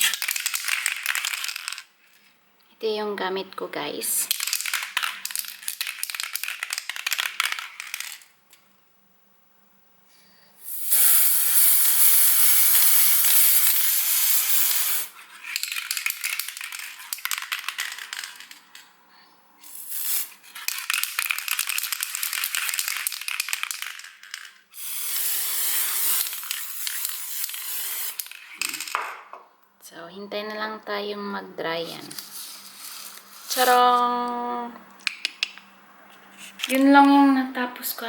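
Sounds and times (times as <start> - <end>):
spray paint can spraying: 0.0 - 1.8, 4.3 - 8.2, 10.6 - 18.5, 19.6 - 29.0, 32.2 - 33.9.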